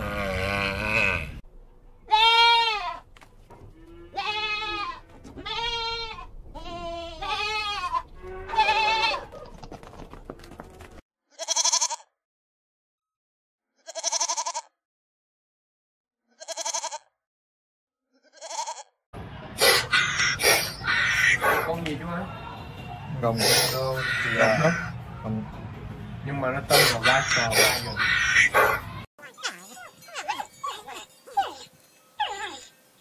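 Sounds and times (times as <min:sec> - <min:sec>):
high-pitched bleating: 0:02.1 - 0:03.0, 0:03.8 - 0:09.3, 0:11.3 - 0:12.1, 0:13.8 - 0:14.8, 0:16.3 - 0:17.1, 0:18.1 - 0:18.9.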